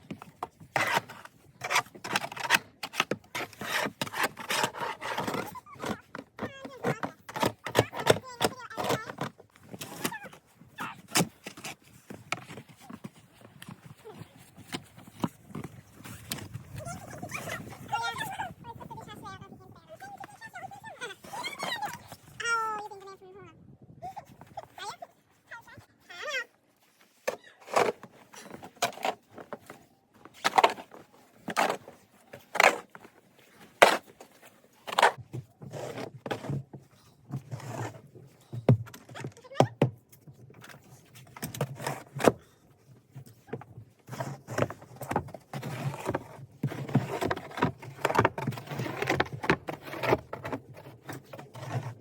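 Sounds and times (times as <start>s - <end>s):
snow shovel scraping snow: 30.3s - 38.0s.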